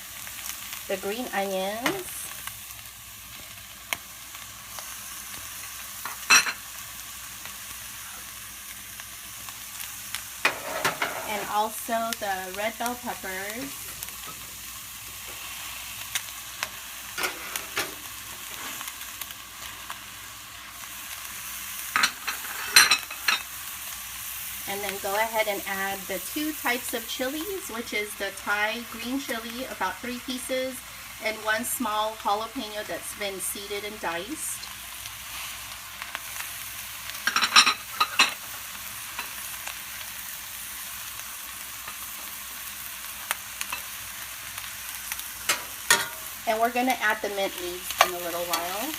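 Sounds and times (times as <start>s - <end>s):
food sizzling in a skillet: 0.0s - 48.9s
utensil scraping a pan: 10.4s - 11.6s.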